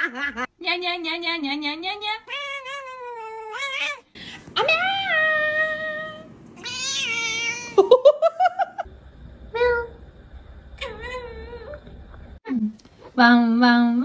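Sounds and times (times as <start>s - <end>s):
cat meowing: 5.1s - 7.8s.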